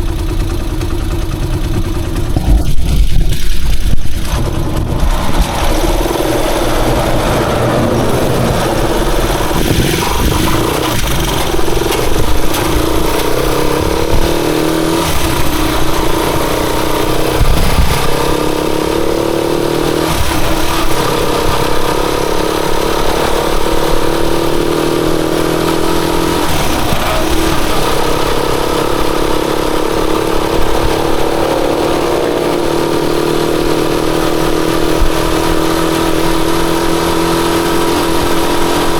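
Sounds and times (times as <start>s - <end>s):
motorcycle engine running: 0.0s - 38.9s
wind rumbling on microphone: 1.7s - 38.9s.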